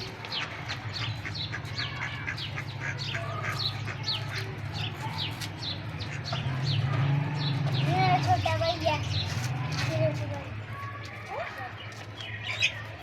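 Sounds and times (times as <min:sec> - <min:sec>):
chicks peeping: 0:00.0 - 0:08.5.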